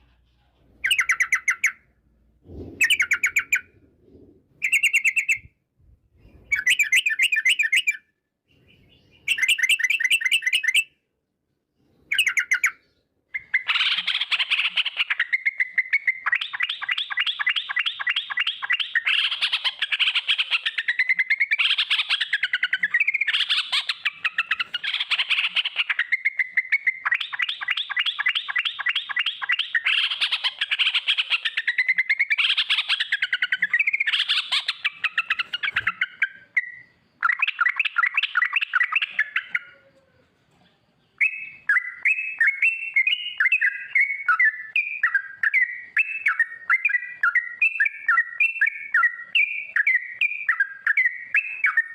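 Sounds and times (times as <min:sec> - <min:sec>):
bulbul rolling trills: 0:00.7 - 0:05.6.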